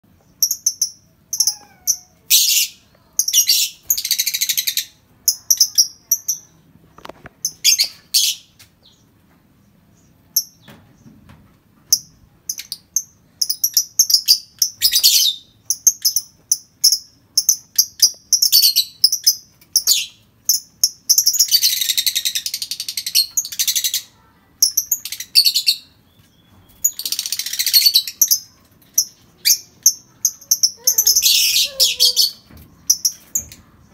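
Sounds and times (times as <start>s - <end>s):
lovebird chirping: 11.9s - 33.9s
lovebird rasping chatter: 29.0s - 33.2s.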